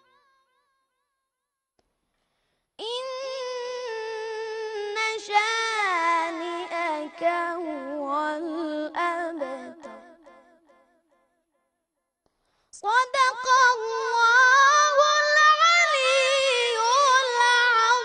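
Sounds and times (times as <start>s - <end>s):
child chanting: 2.8s - 10.4s, 12.8s - 18.0s.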